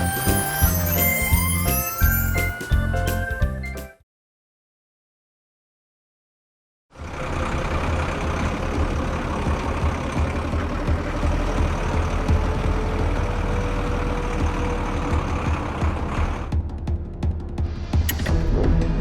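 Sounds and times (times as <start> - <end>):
heavy vehicle engine rumbling: 7.0 - 16.7.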